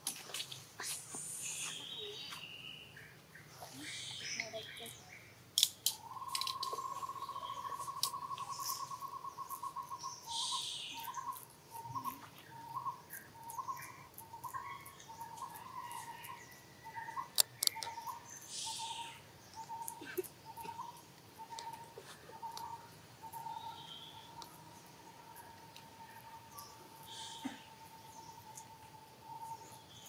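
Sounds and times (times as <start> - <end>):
sharp clicks: 17.3 - 18.0.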